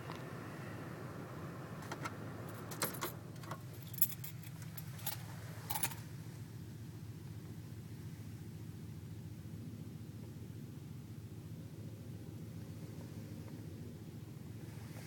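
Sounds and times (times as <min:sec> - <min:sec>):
steady low rumble: 0:00.0 - 0:15.0
metallic clinks and jingles: 0:02.6 - 0:06.0.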